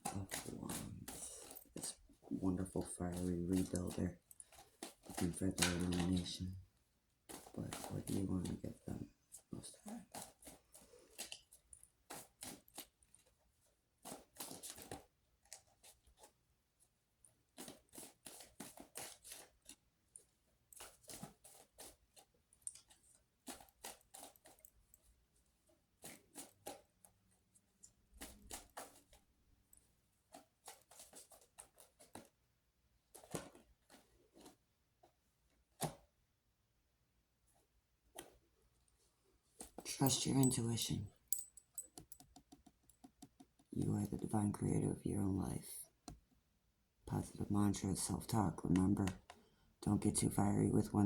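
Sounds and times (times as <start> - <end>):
cards shuffling: 0.0 - 6.6, 7.3 - 9.1, 14.0 - 16.4, 17.5 - 19.8, 20.8 - 24.6, 26.0 - 27.0, 28.1 - 29.2, 30.3 - 32.4, 33.1 - 34.6.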